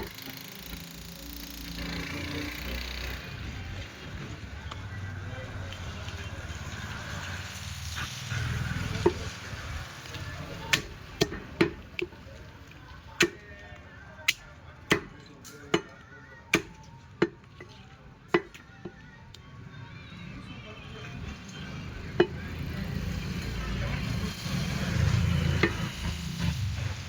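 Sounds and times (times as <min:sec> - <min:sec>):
cleaver chopping meat and bone: 0:08.9 - 0:09.3, 0:10.7 - 0:12.2, 0:13.2 - 0:13.6, 0:14.3 - 0:19.0.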